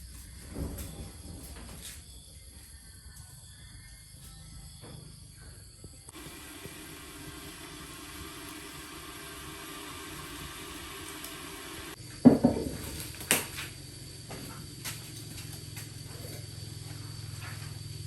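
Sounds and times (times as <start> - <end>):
steady hiss: 6.1 - 12.0
loud knock with ringing: 12.3 - 12.8.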